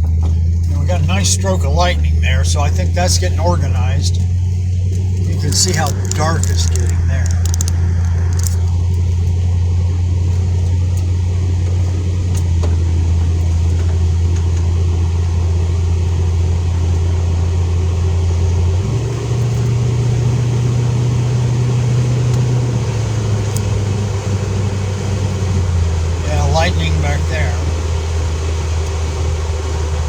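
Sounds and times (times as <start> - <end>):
car engine and road drone: 0.0 - 30.0.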